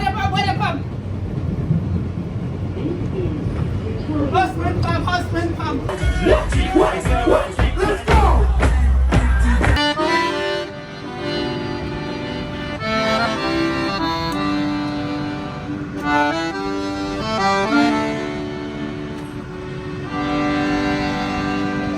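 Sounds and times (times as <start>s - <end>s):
loud music with heavy bass: 5.9s - 9.9s
instrumental music with held chords: 9.3s - 21.9s.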